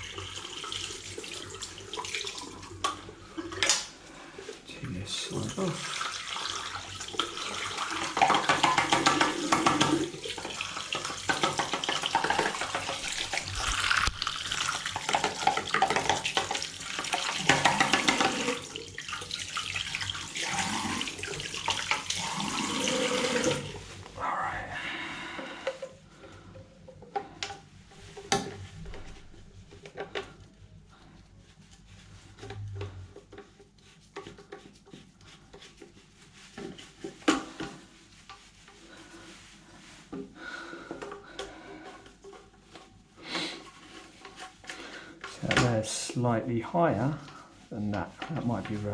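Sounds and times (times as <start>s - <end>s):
tap water running into sink: 0.0s - 4.0s, 4.9s - 23.9s.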